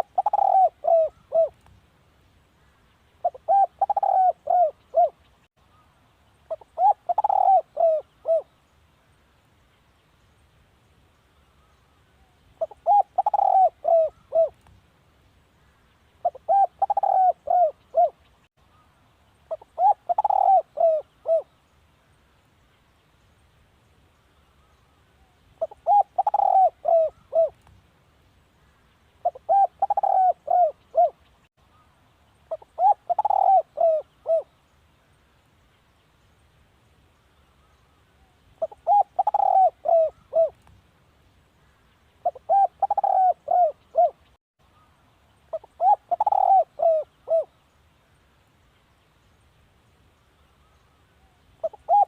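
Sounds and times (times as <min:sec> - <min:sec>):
dove cooing: 0:00.0 - 0:01.6, 0:03.2 - 0:05.2, 0:06.5 - 0:08.5, 0:12.6 - 0:14.6, 0:16.2 - 0:18.2, 0:19.5 - 0:21.5, 0:25.6 - 0:27.6, 0:29.2 - 0:31.2, 0:32.5 - 0:34.5, 0:38.6 - 0:40.6, 0:42.2 - 0:44.3, 0:45.5 - 0:47.5, 0:51.6 - 0:52.0.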